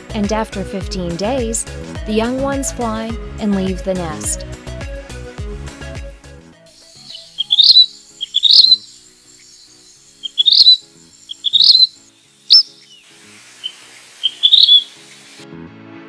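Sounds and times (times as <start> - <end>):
bird calling high phrases: 6.9 - 15.1.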